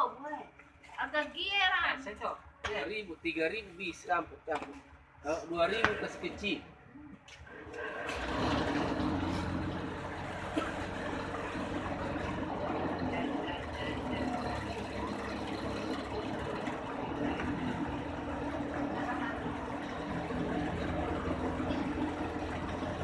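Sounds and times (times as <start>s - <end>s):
cotton candy machine running: 10.2s - 23.0s.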